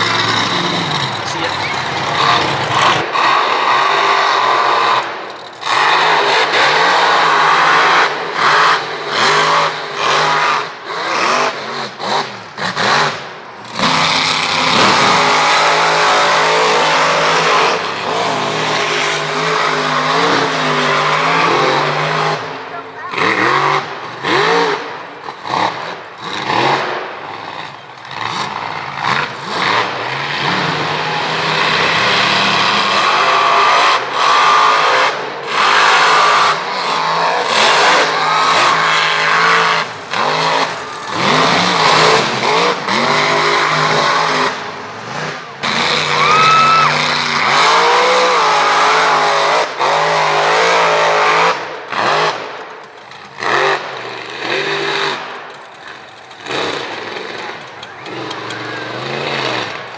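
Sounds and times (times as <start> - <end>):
truck engine revving: 0.0 - 59.9.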